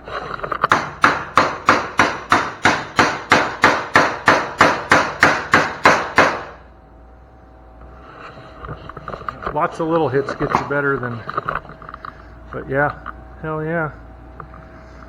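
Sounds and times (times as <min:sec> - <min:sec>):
hammer striking sheet steel: 0:00.7 - 0:06.6.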